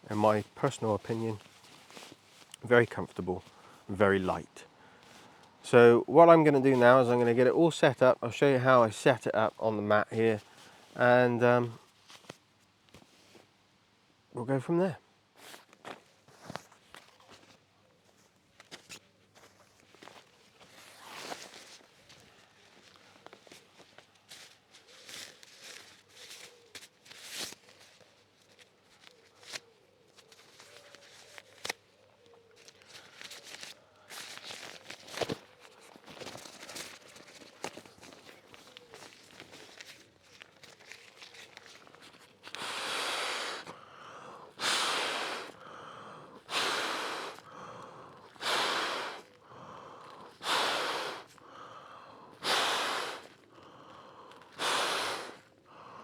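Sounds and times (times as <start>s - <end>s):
camping gear rustling and clicking: 0.5s - 2.7s, 15.4s - 44.8s
person blowing into air mat valve: 42.4s - 45.7s, 46.4s - 47.7s, 48.3s - 49.4s, 50.0s - 51.4s, 52.4s - 53.4s, 54.4s - 56.0s.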